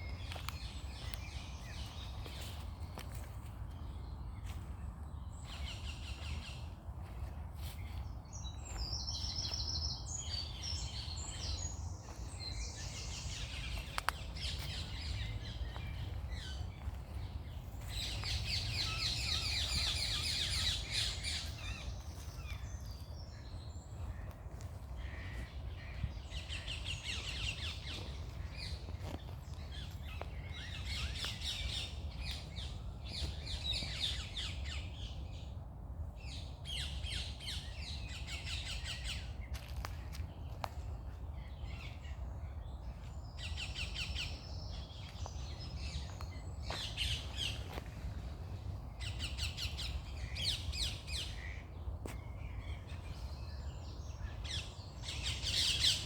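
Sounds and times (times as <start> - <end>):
birds chirping and trilling: 0.0 - 35.4.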